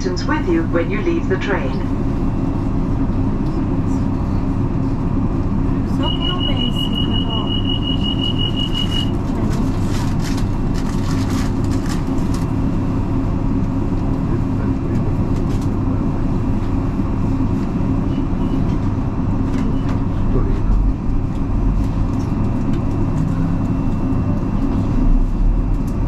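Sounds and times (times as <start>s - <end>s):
train rumbling on rails: 0.0s - 26.0s
high tone: 6.0s - 9.2s.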